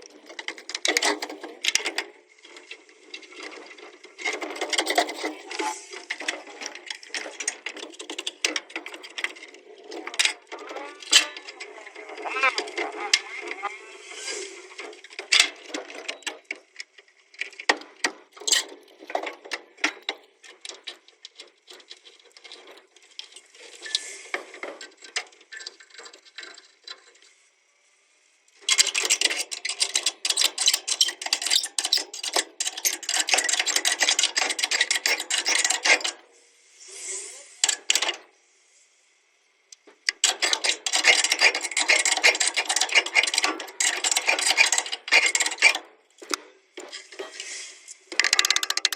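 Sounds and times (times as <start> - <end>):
hand tool rasping metal: 40.2 - 45.8.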